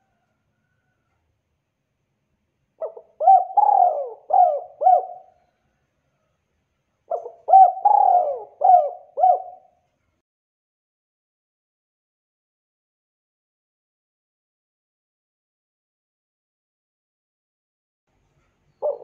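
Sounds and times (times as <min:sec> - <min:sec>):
dove cooing: 0:02.8 - 0:05.4, 0:07.1 - 0:09.8, 0:18.8 - 0:19.0.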